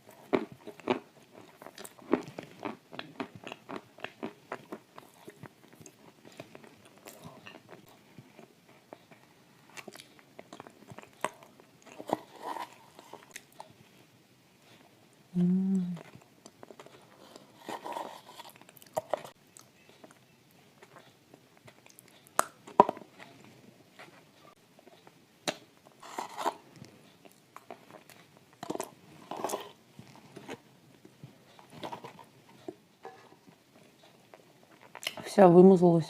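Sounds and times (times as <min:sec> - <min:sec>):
chewing crunchy cookies: 0:00.0 - 0:15.0, 0:16.0 - 0:35.3
short hummed voice: 0:15.3 - 0:16.0.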